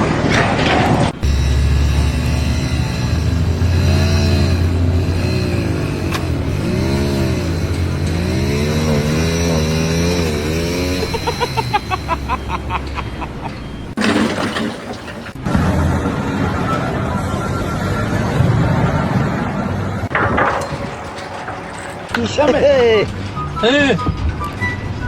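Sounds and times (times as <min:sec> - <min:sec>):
engine revving: 0:00.0 - 0:14.4.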